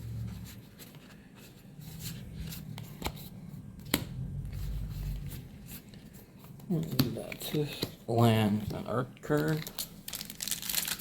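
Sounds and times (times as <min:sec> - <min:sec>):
trading cards rustling and clicking: 0:00.5 - 0:08.0.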